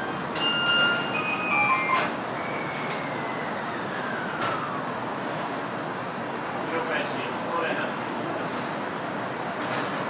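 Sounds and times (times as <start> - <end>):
train and platform noise: 0.0 - 10.0.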